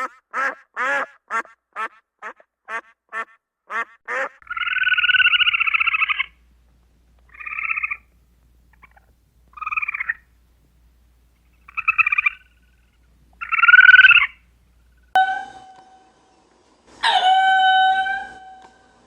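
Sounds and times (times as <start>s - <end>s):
short rattling animal calls: 11.5s - 14.4s
long steady pitched animal calls: 11.6s - 14.4s.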